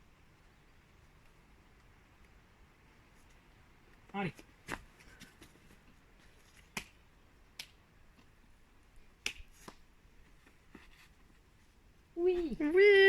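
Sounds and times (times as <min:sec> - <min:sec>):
hands and shoes striking rock: 0:04.4 - 0:05.8.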